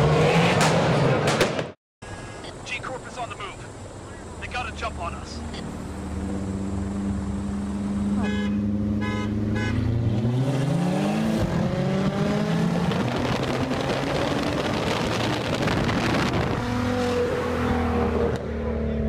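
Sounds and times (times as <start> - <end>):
car engines accelerating hard: 4.5 - 19.0
car horn toots: 8.2 - 9.9.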